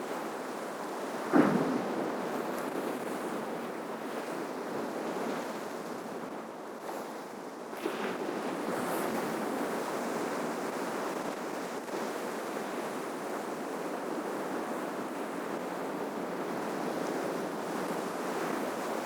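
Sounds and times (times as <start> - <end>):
ocean waves crashing on shore: 1.2 - 6.2.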